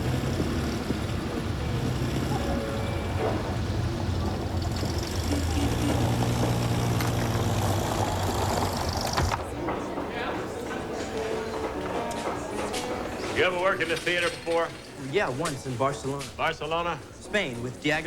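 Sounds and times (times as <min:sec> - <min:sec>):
vehicle engine humming: 0:00.0 - 0:09.9
street noise: 0:00.0 - 0:18.0.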